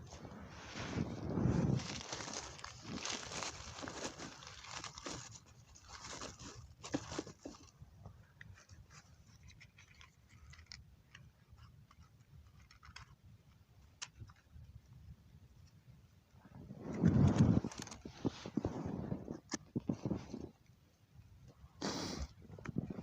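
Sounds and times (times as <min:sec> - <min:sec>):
twigs rustling and crunching: 0:00.1 - 0:07.8, 0:08.4 - 0:13.2, 0:16.8 - 0:20.4.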